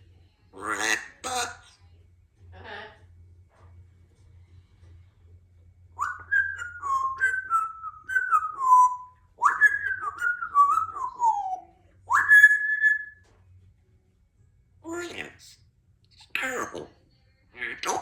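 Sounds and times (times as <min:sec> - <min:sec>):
parrot whistling a tune: 0:06.0 - 0:13.2.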